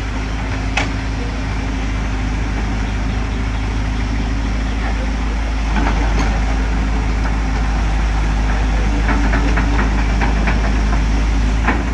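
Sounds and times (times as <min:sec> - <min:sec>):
excavator diesel engine droning: 0:00.0 - 0:11.9.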